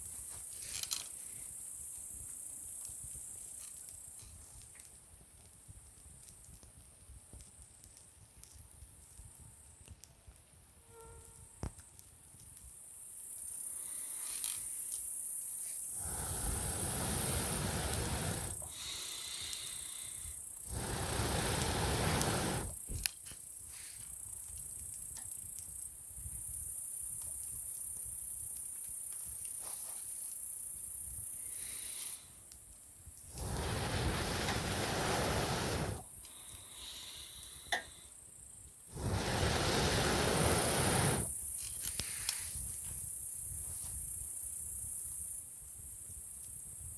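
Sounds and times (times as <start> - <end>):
burning wood crackling: 0.1 - 10.6, 13.8 - 24.6, 31.4 - 37.9, 38.8 - 44.0
insects shrilling: 13.0 - 25.4, 33.3 - 37.7, 38.9 - 43.5
whooshing puffs of air: 16.0 - 22.8, 33.3 - 37.8, 38.9 - 41.4.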